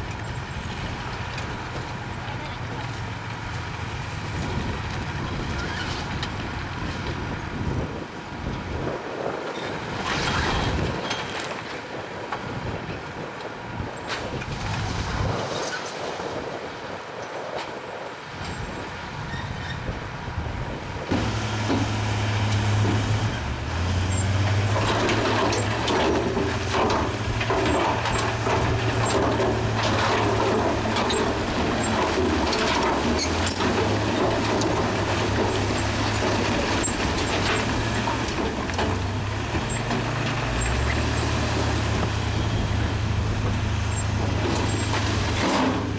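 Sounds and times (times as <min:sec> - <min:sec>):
bulldozer diesel engine: 0:00.0 - 0:08.6, 0:21.0 - 0:45.9
wind buffeting microphone: 0:03.8 - 0:45.4
faint engine: 0:21.1 - 0:45.9
rock clattering and scraping: 0:21.2 - 0:45.9.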